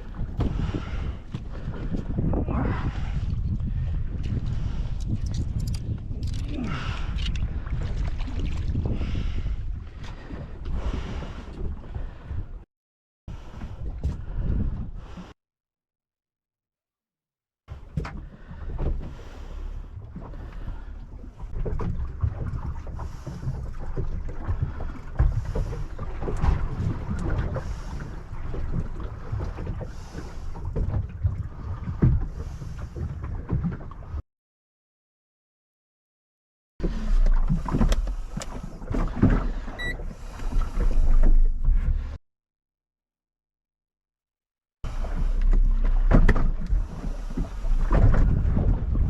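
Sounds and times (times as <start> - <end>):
water slapping against boat hull: 0.0 - 2.4, 20.0 - 34.2, 36.9 - 42.0, 44.9 - 49.0
wind buffeting microphone: 0.0 - 12.6, 46.2 - 49.0.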